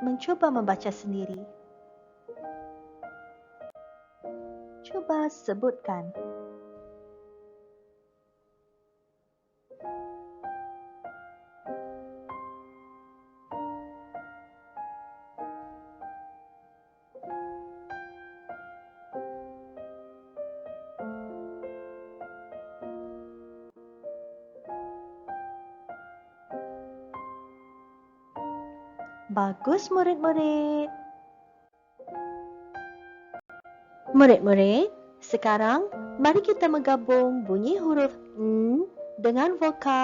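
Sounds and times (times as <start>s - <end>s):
piano music: 0.0s - 40.0s.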